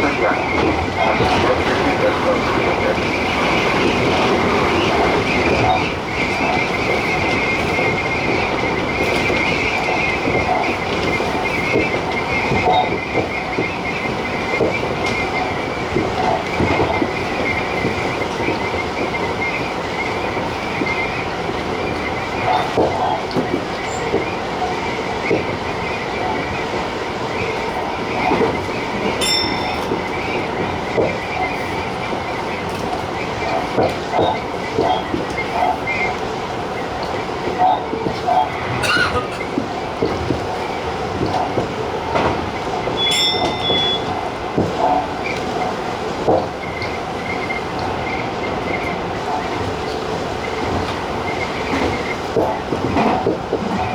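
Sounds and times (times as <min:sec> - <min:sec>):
electric train rumble: 0:00.0 - 0:53.9
high train whine: 0:00.0 - 0:53.9
high-pitched ring: 0:43.0 - 0:44.0.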